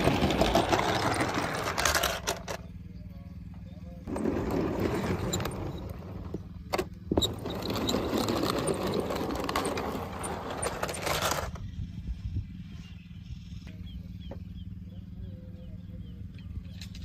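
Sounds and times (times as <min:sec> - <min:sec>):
plastic toy cars rattling: 0:00.0 - 0:02.6, 0:07.2 - 0:11.6.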